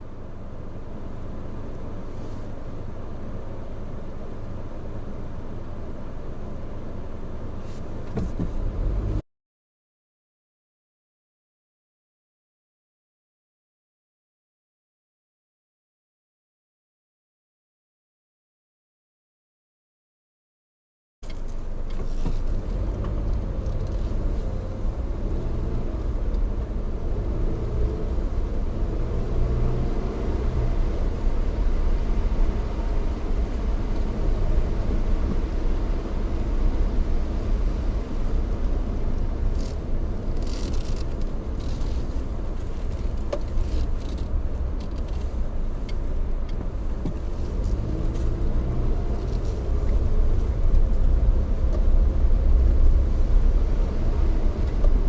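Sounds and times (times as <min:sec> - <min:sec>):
vehicle engine rumble: 0:00.0 - 0:09.2, 0:21.2 - 0:55.0.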